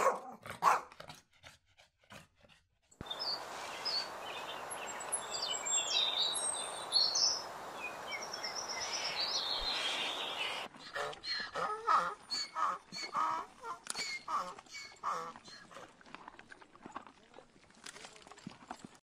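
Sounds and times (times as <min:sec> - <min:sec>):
bird chirping: 0:03.0 - 0:10.7
steady background hiss: 0:03.0 - 0:10.7.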